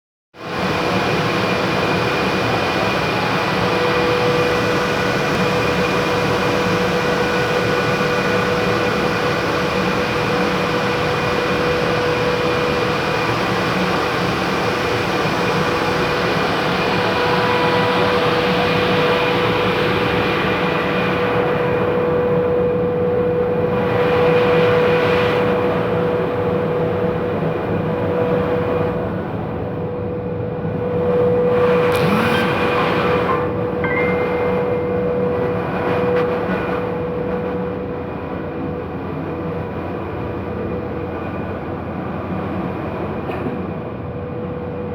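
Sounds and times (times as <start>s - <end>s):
motor whine: 30.7s - 38.1s
air blower rushing: 31.7s - 35.6s.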